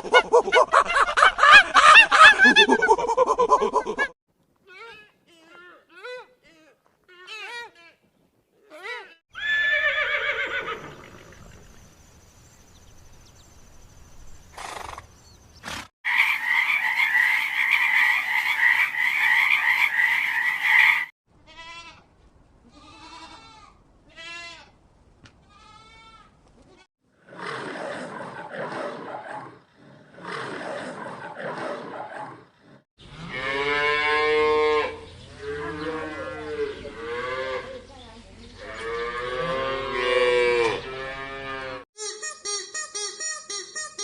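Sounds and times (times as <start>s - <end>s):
farm animal calls: 14.6s - 21.1s.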